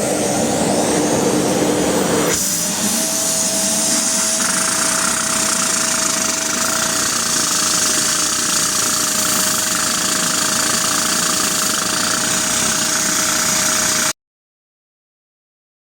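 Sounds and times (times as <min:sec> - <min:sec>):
small engine rattling and whining: 0:01.9 - 0:14.1.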